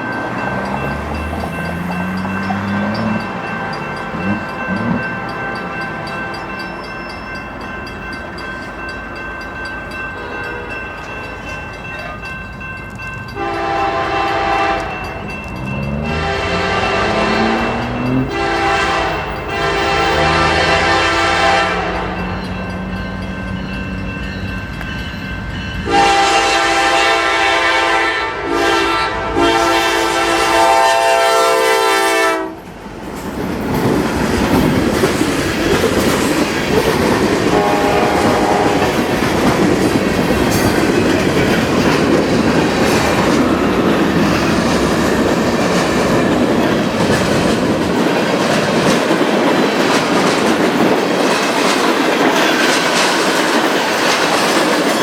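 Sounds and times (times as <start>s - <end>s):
wheels clacking over rail joints: 0.0s - 25.9s, 32.6s - 55.0s
train rumbling past: 0.0s - 55.0s
train horn blasts: 13.4s - 15.1s, 15.7s - 22.4s, 25.8s - 32.7s, 37.4s - 39.3s.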